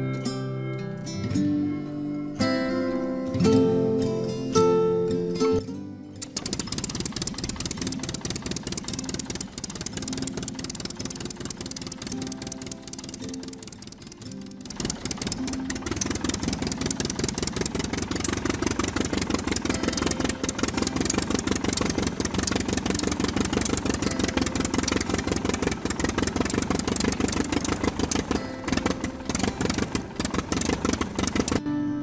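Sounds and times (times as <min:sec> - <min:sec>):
small tractor engine running: 0:06.2 - 0:31.7.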